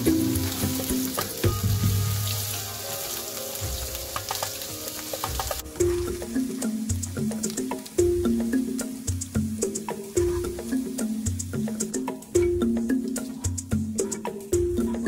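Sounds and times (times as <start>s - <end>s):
food sizzling in hot oil: 0.0s - 13.7s
background music: 0.0s - 15.0s
wooden spatula scraping and tapping: 4.0s - 8.0s.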